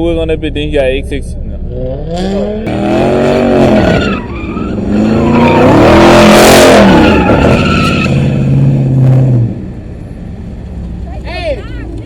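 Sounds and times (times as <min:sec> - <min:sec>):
car engine revving: 0:00.0 - 0:12.0
tyres screeching: 0:01.7 - 0:09.2.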